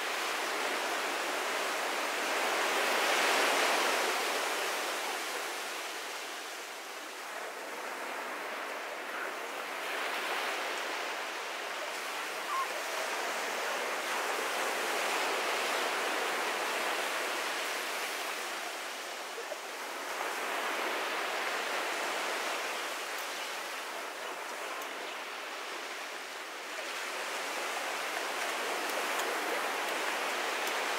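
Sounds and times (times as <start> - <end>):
ocean waves breaking on beach: 0.0 - 30.9.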